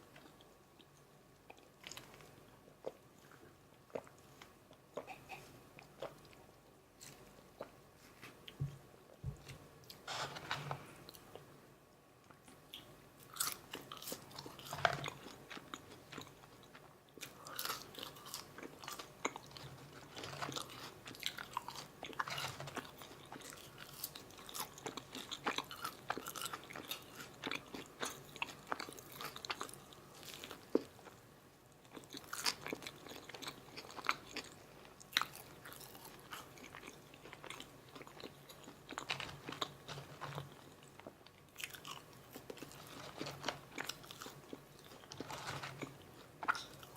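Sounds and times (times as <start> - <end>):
chewing and crunching food: 0.0 - 11.5, 12.2 - 46.9.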